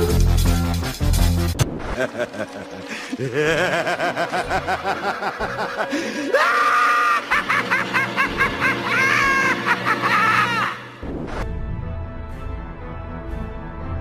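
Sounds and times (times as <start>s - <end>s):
background music: 0.0s - 14.0s
laugh-like cackling calls: 2.0s - 10.8s.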